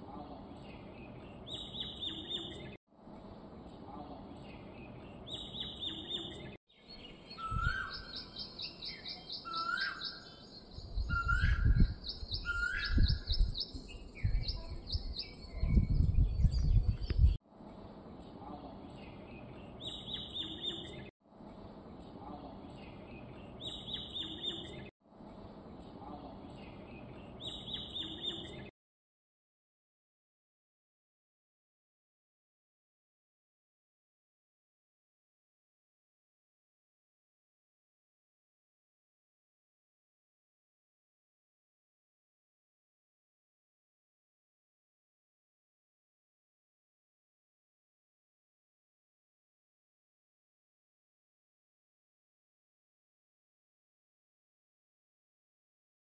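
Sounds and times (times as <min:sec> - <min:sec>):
small birds chirping: 0:00.0 - 0:28.7
whistled bird notes: 0:05.3 - 0:17.4.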